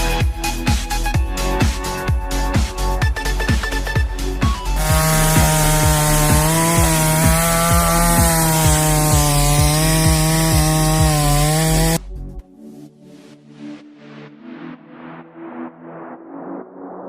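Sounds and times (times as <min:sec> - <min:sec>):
chainsaw cutting wood: 0:04.8 - 0:12.0.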